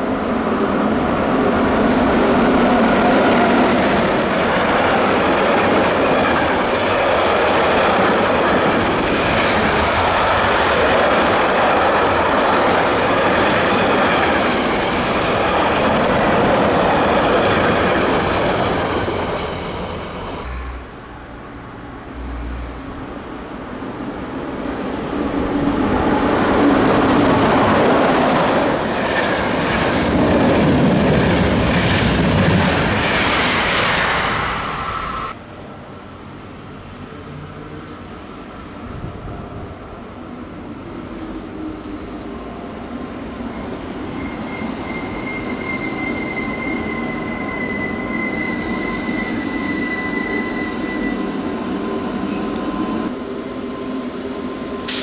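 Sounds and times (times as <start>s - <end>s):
train rolling noise: 0.0s - 55.0s
wheel squeal: 43.4s - 54.0s.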